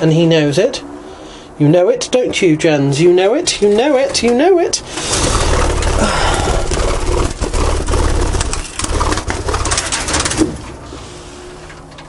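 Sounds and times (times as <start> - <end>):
birds flapping wings: 4.9 - 10.8
low rumble: 5.0 - 10.2.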